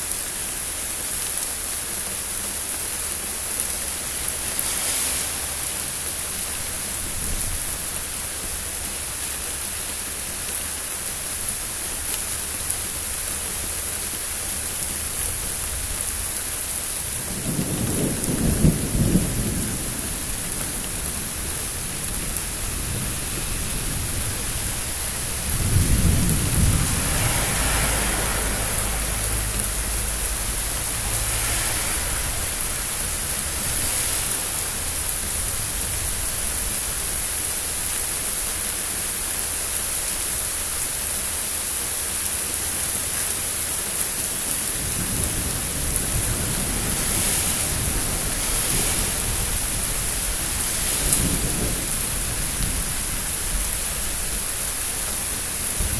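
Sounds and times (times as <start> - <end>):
rain hissing: 0.0 - 55.9
thunder rumbling: 17.0 - 37.9, 44.7 - 55.9.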